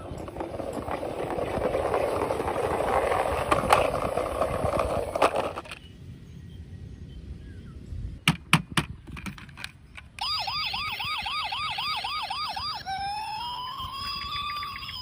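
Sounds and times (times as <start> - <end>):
toy electronic siren: 10.2 - 15.0.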